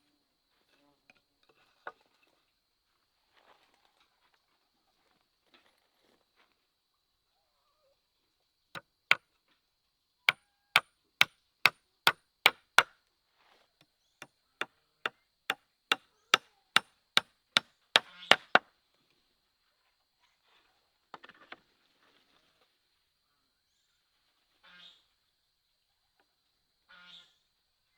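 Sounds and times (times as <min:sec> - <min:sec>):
tool chopping into wood: 0:18.0 - 0:18.6.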